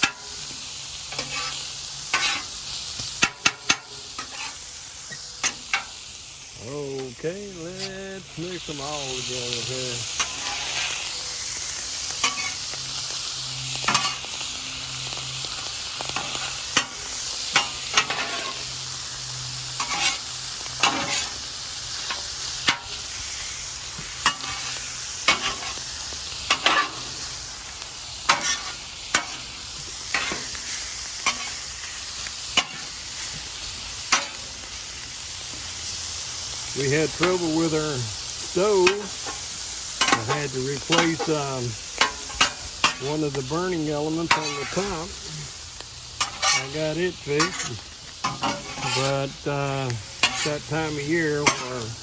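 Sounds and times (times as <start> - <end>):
spatula scraping on griddle: 0.0 - 6.1, 6.9 - 52.0
meat and vegetables sizzling on griddle: 0.0 - 52.0.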